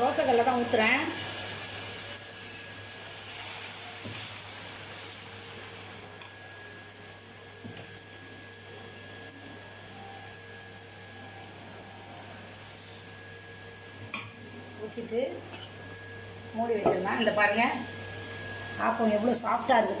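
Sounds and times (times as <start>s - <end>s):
batter sizzling on a hot griddle: 0.0s - 20.0s.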